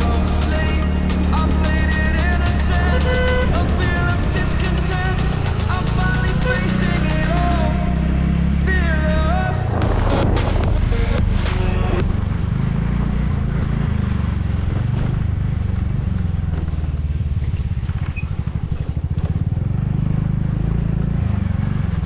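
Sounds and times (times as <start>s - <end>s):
scooter engine droning: 0.0s - 22.0s.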